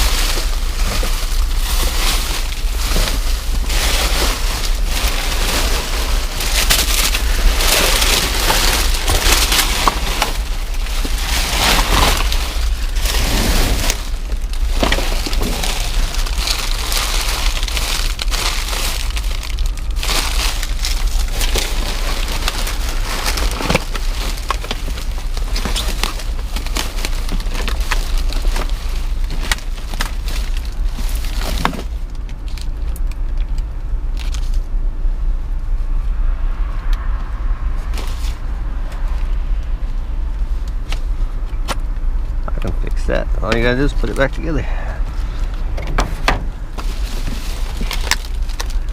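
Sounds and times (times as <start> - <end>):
rustling and crackling of trash bags: 0.0 - 35.9, 37.0 - 48.9
steady low rumble: 0.0 - 48.9.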